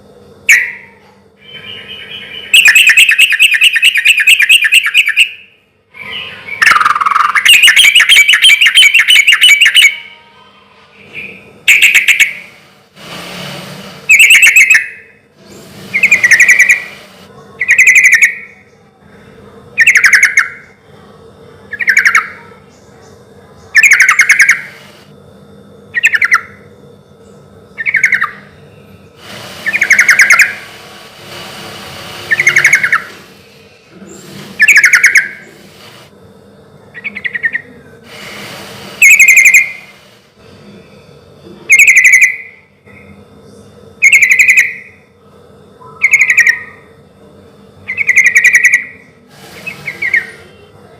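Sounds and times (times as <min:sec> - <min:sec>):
bulbul singing: 0:00.5 - 0:10.2, 0:11.0 - 0:12.5, 0:14.1 - 0:15.2, 0:15.9 - 0:18.8, 0:19.8 - 0:20.8, 0:21.7 - 0:24.8, 0:25.9 - 0:30.7, 0:32.3 - 0:33.2, 0:34.6 - 0:35.6, 0:36.9 - 0:37.8, 0:39.0 - 0:39.9, 0:41.7 - 0:43.2, 0:44.0 - 0:45.0, 0:45.9 - 0:46.9, 0:47.8 - 0:50.7.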